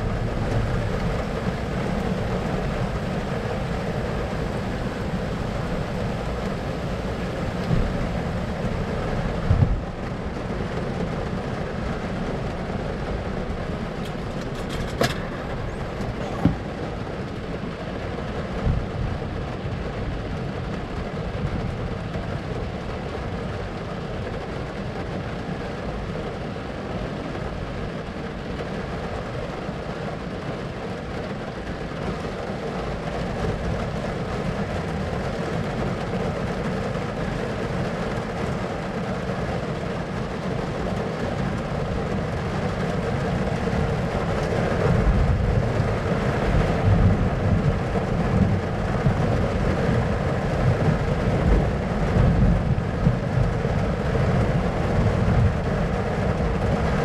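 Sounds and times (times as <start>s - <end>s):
steady low rumbling: 0.0s - 10.0s, 39.8s - 56.8s.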